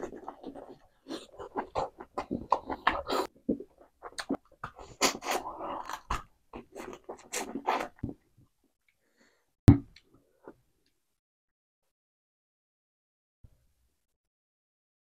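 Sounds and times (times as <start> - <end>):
wet chewing and lip-smacking: 0.0 - 8.2.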